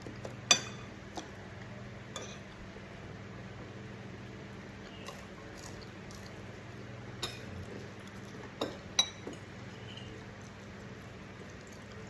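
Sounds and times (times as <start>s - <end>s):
cutlery clinking on dishes: 0.5s - 0.9s, 2.2s - 2.5s.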